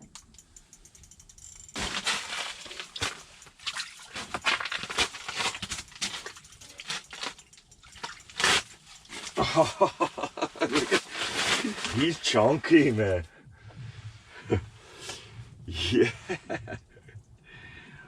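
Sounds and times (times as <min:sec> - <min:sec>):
fish splashing in water: 0:01.8 - 0:09.4.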